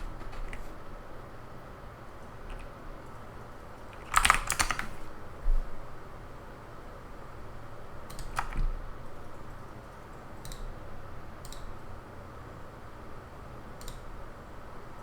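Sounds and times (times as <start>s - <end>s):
keyboard and mouse clicks: 0.0s - 0.8s, 2.4s - 3.2s, 3.8s - 5.1s, 8.1s - 8.8s, 10.4s - 10.7s, 11.4s - 11.7s, 13.8s - 14.1s.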